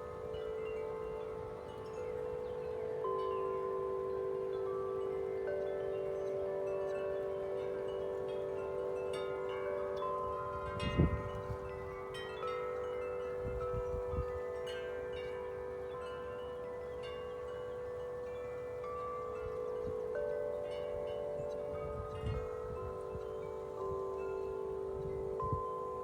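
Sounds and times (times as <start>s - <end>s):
metal wind chimes ringing: 0.0s - 26.0s
wind buffeting microphone: 10.3s - 14.6s, 21.2s - 26.0s.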